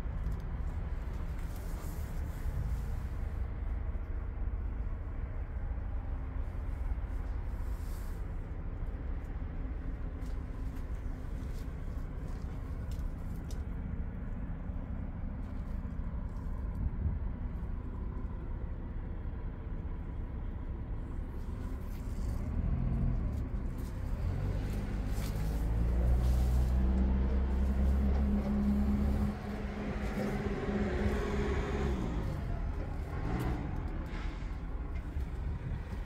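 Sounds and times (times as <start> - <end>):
truck diesel engine running: 17.2 - 36.0.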